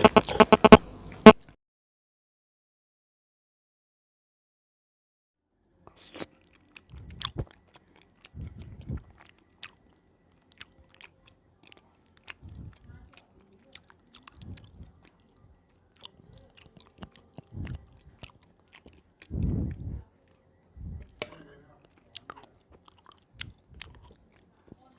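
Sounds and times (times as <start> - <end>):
person chewing soft food: 5.9 - 24.9
wet mouth clicks: 16.0 - 19.8.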